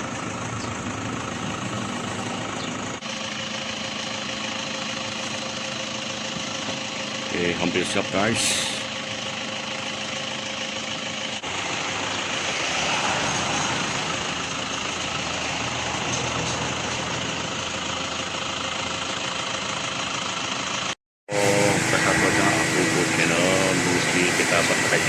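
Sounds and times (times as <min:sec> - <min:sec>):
machine running with hiss: 0:21.3 - 0:25.0.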